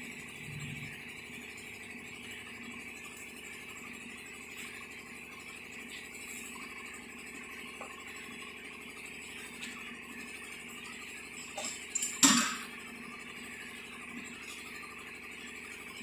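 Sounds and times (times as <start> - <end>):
steady background hum: 0.0 - 16.0
sharp metal clank with ring: 11.6 - 12.7.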